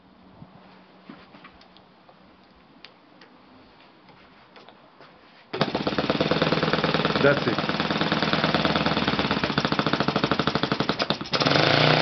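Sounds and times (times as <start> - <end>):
model engine running: 5.6 - 12.0.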